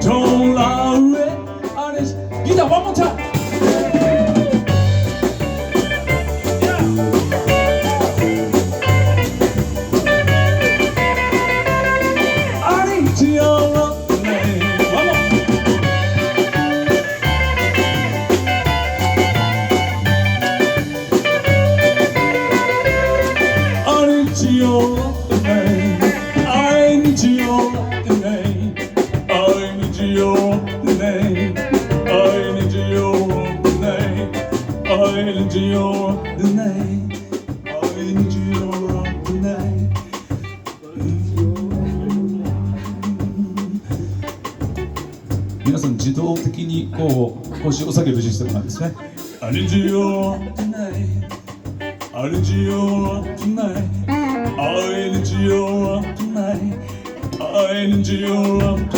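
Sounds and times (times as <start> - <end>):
bass guitar: 0.0 - 58.9
drum kit: 0.0 - 58.9
electric guitar solo: 2.4 - 13.3, 14.0 - 29.5, 54.0 - 55.2.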